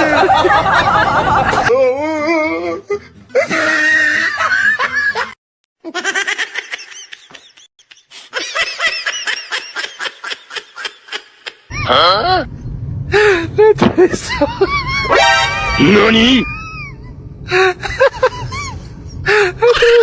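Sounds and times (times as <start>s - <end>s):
people laughing: 0.0s - 1.7s, 3.4s - 5.4s.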